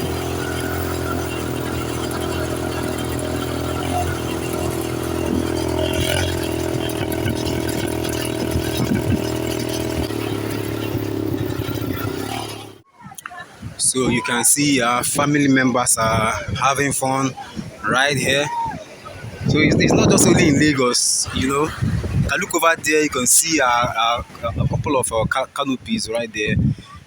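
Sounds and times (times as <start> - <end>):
engine running steadily: 0.0 - 12.8.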